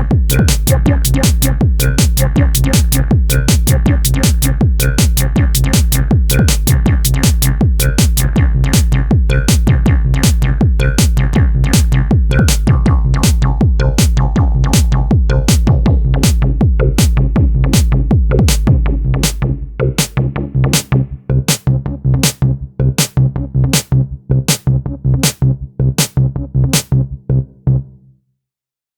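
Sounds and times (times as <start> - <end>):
electronic drum hits: 0.0 - 8.2, 8.8 - 10.4, 11.0 - 11.2, 11.8 - 19.4
deep synth bass: 0.0 - 28.1.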